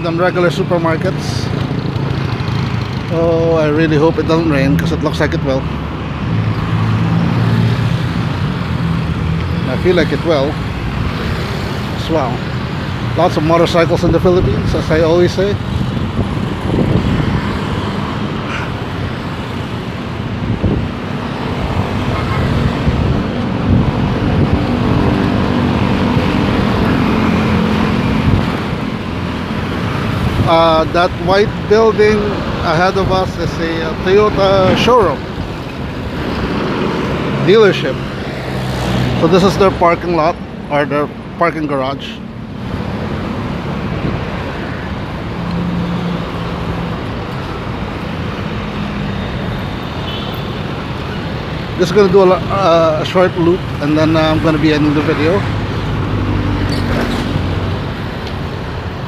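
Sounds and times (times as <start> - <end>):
cars and motorcycles passing: 0.0 - 59.0
highway traffic: 0.0 - 59.0
wind rumble on microphone: 13.6 - 18.4, 19.8 - 37.4.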